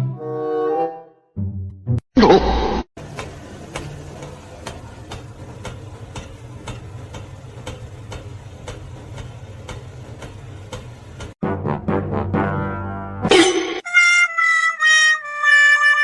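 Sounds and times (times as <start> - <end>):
mechanical ticking: 3.1 - 11.4.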